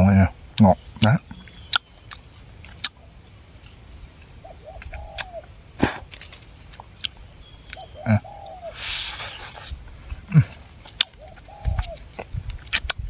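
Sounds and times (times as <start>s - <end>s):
chewing with wet mouth clicks: 1.0s - 3.0s, 10.8s - 13.0s
animal whining calls: 7.8s - 10.5s.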